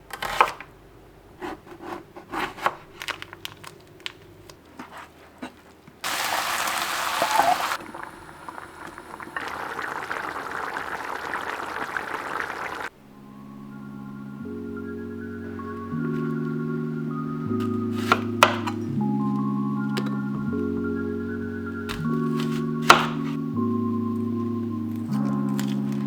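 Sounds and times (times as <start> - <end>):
ingredients crinkling and clicking: 2.4 - 6.0, 24.9 - 26.0.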